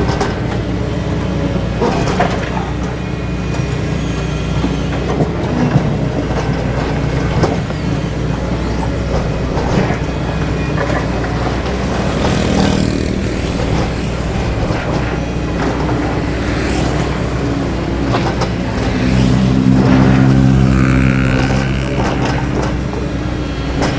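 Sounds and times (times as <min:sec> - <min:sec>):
excavator diesel engine running: 0:00.0 - 0:23.9
clanks and knocks: 0:04.6 - 0:23.9
high whine: 0:17.1 - 0:23.4.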